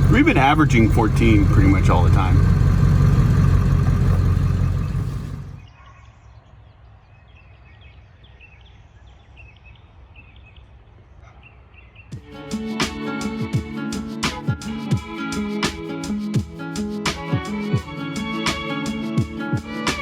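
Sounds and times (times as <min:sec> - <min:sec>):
diesel engine rumble: 0:00.0 - 0:05.7.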